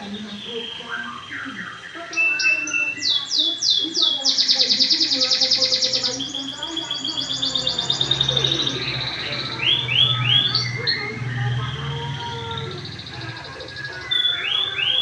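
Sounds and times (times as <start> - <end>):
canary singing trills: 0.0 - 15.0.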